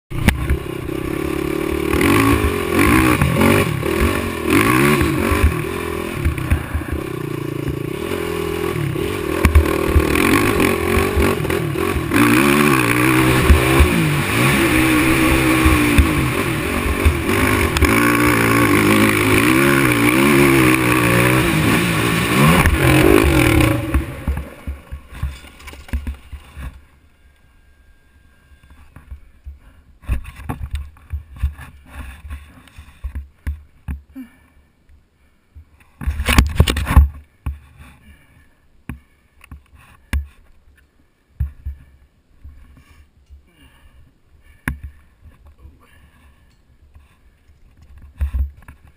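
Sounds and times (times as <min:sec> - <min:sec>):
quad engine revving: 0:00.1 - 0:25.4.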